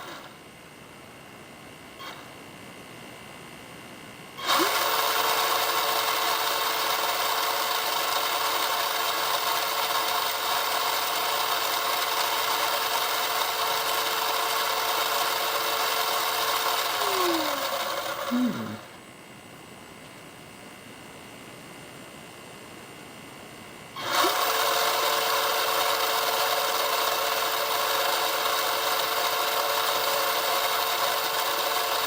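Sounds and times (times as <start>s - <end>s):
electric motor high whine: 4.4s - 18.9s.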